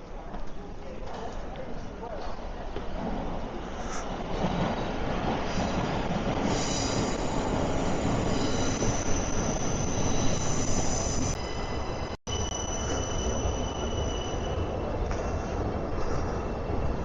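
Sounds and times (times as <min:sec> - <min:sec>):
train rumble: 0:02.4 - 0:17.0
train wheels squealing on rails: 0:05.5 - 0:17.0.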